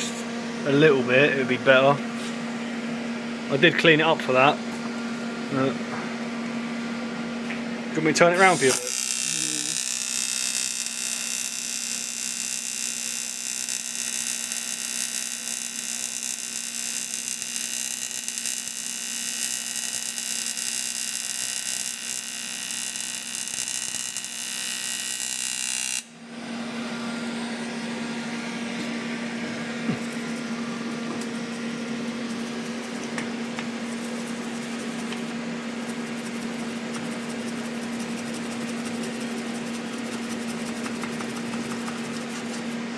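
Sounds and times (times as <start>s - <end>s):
welder arc buzzing: 8.1s - 42.9s.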